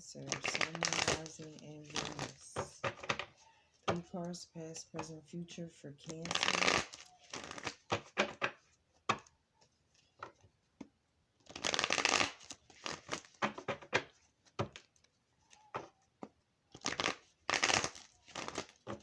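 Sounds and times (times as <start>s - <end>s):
cards rustling while shuffled: 0.2s - 5.2s, 6.0s - 19.0s
cards snapping and tapping: 6.3s - 9.3s, 10.2s - 15.1s, 15.8s - 19.0s.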